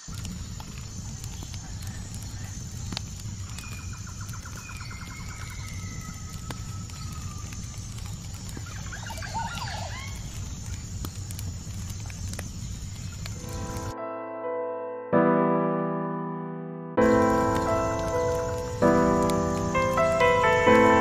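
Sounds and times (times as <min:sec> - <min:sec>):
faint crackles: 0:00.0 - 0:14.0, 0:17.0 - 0:21.0.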